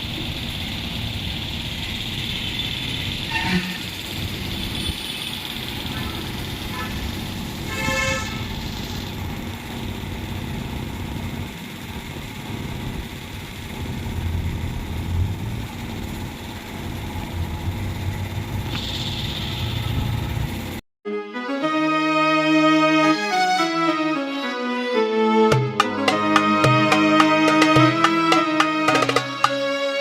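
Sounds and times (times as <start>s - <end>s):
vehicle rumble: 0.0s - 20.8s
vehicle horn toot: 3.3s - 4.0s, 6.0s - 7.1s, 7.7s - 8.6s
violin music: 21.1s - 30.0s.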